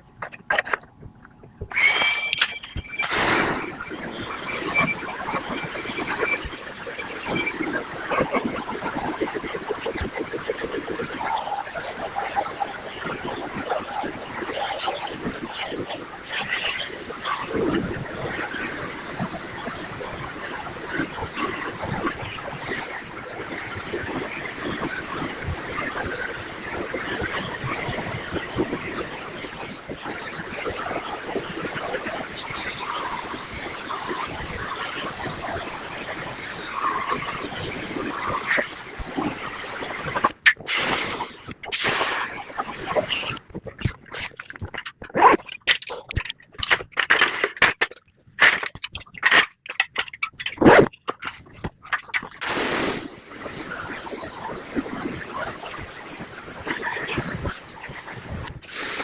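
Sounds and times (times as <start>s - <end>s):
water spraying hiss: 3.0s - 43.4s, 52.4s - 59.0s.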